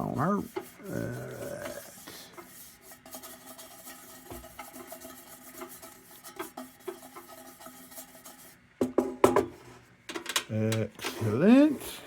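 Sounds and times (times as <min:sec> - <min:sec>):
rubbing on tin: 0:00.0 - 0:08.6.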